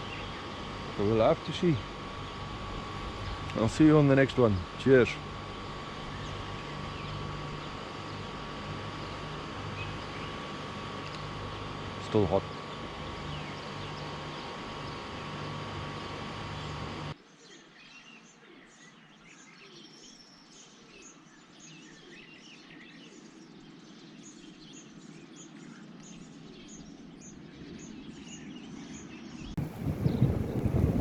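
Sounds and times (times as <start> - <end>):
steady hum: 0.0 - 17.2, 29.5 - 31.0
small birds chirping: 0.0 - 31.0.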